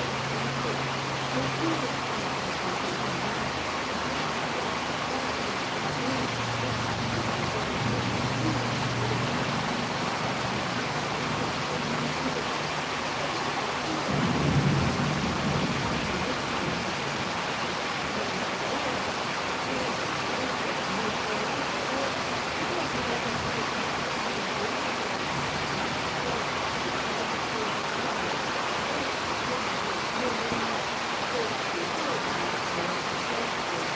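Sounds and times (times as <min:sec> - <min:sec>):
rain: 0:00.0 - 0:33.9
wind: 0:00.0 - 0:33.9.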